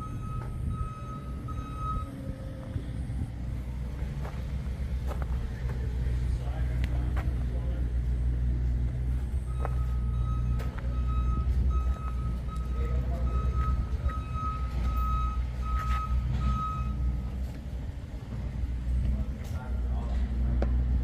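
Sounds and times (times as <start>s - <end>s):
high electronic beeps: 0.0s - 2.2s, 9.4s - 17.2s
low engine rumble: 0.0s - 21.0s.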